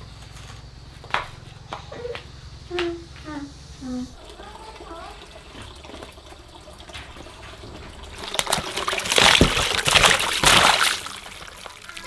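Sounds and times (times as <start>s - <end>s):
water pouring and splashing: 3.9s - 12.0s.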